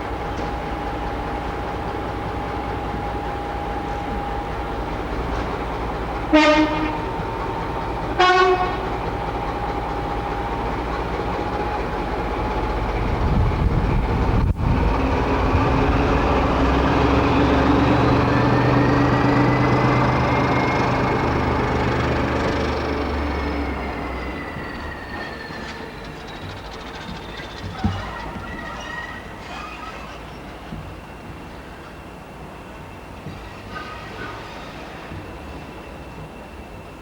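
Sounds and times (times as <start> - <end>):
diesel locomotive engine: 0.0 - 37.0
locomotive horn blasts: 6.3 - 7.2, 8.1 - 9.0.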